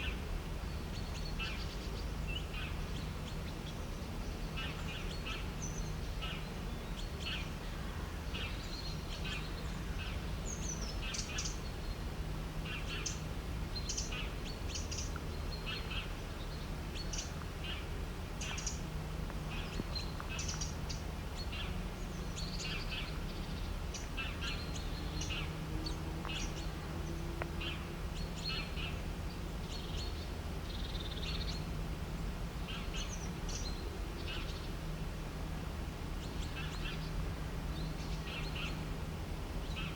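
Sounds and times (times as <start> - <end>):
birds chirping: 12.7 - 31.7, 36.1 - 38.8.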